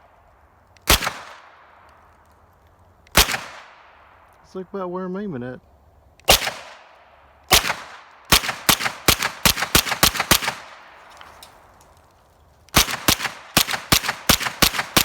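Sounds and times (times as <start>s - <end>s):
rifle gunshots: 0.8s - 1.6s, 3.1s - 3.9s, 6.3s - 6.9s, 7.5s - 11.7s, 12.7s - 15.0s.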